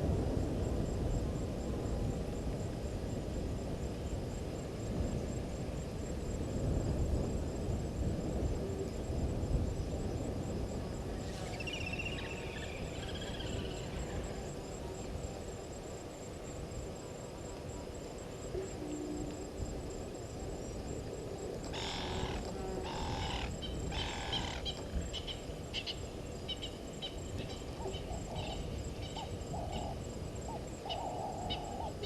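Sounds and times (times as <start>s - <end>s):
high insect trill: 0.0s - 32.0s
warbling bird call: 21.7s - 30.0s.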